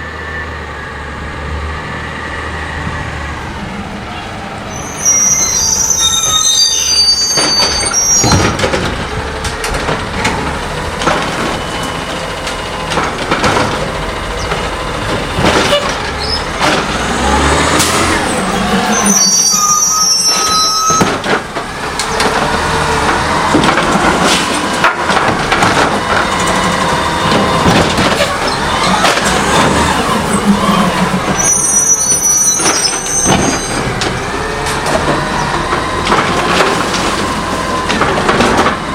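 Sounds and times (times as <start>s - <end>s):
garbage truck running: 0.0s - 38.9s
brief high squeals: 4.7s - 8.5s, 18.8s - 21.1s, 31.4s - 33.8s
metal clanks and knocks: 7.4s - 16.9s, 32.6s - 38.9s.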